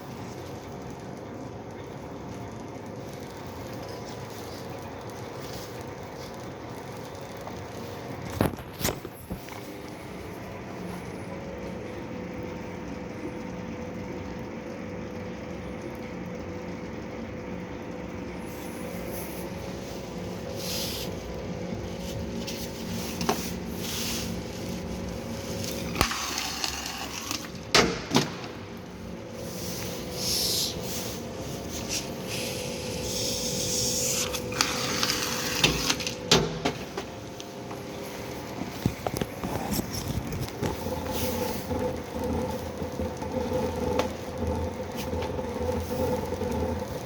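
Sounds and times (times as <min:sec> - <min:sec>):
motor hum: 0:00.0 - 0:47.0
hissing scrapes: 0:29.4 - 0:36.0.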